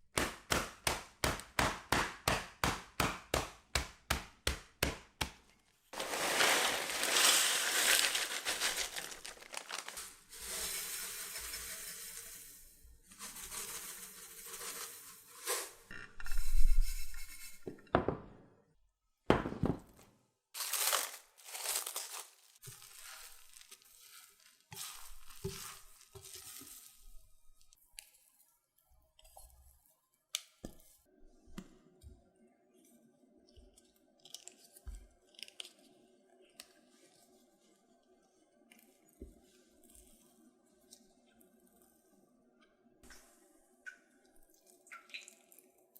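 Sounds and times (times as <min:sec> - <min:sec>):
crinkling and tearing: 0:06.0 - 0:10.3, 0:20.6 - 0:26.9
scrapes and light knocks: 0:22.6 - 0:27.1.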